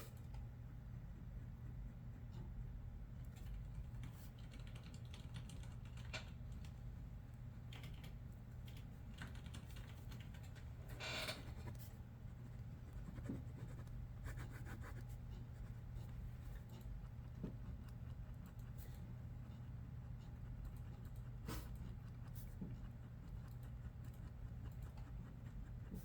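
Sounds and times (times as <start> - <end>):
steady low hum: 0.0 - 26.0
keyboard typing clicks: 3.4 - 6.7.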